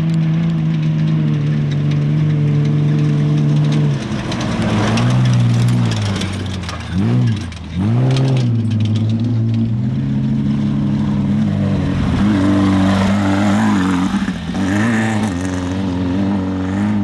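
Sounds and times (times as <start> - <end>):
race vehicle engine revving: 0.0 - 17.0.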